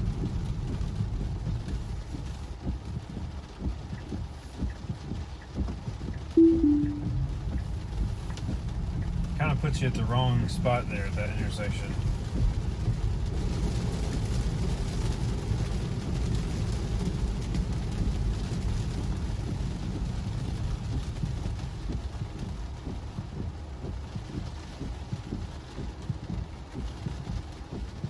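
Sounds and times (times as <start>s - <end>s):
tyres on wet road: 7.7s - 19.1s.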